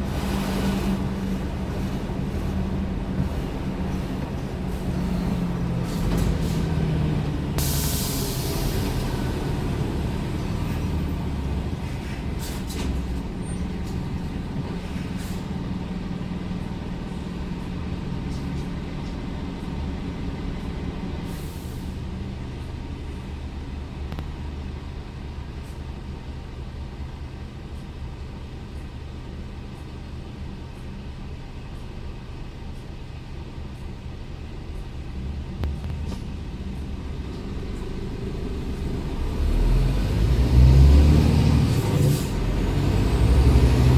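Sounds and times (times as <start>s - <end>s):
diesel truck engine running: 0.0s - 43.9s
air hiss: 7.6s - 8.9s.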